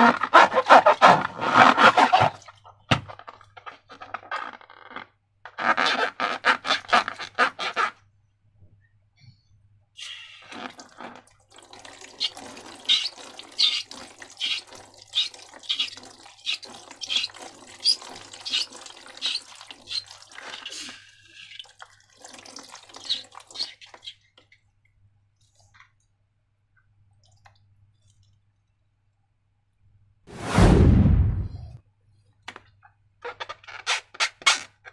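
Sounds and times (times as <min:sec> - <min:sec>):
wet slime squelching: 0:12.1 - 0:21.7.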